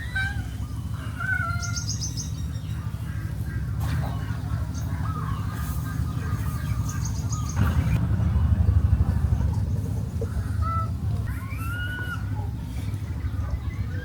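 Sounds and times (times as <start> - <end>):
small birds chirping: 0.0 - 14.0
low rumble: 5.4 - 13.3.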